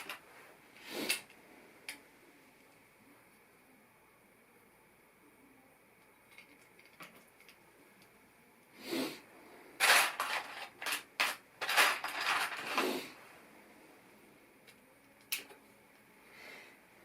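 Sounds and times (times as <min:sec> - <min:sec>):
plastic bricks rustling and clattering: 0:09.8 - 0:13.0.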